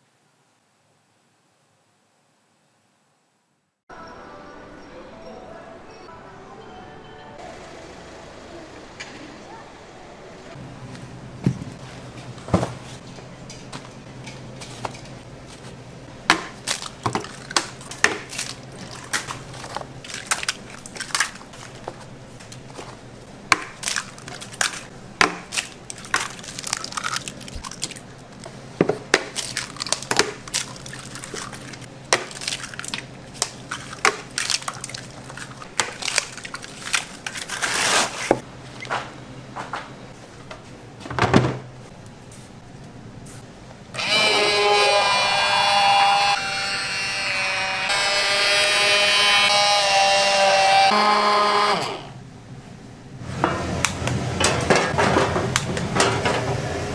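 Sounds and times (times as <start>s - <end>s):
utensils knocking and clattering: 54.4s - 56.6s.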